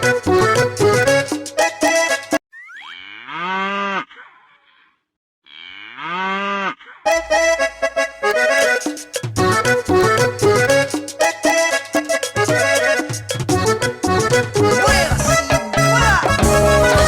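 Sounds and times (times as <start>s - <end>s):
accordion children's music: 0.0s - 2.4s, 7.1s - 17.0s
cow mooing: 2.9s - 4.8s, 5.5s - 7.2s.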